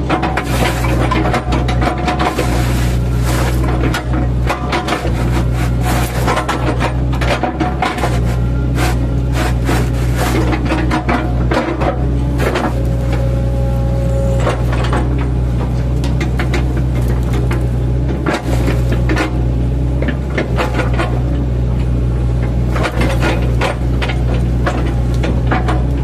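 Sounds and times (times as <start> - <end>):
excavator diesel engine running: 0.0 - 26.0
bucket cracking into wood: 0.1 - 11.8.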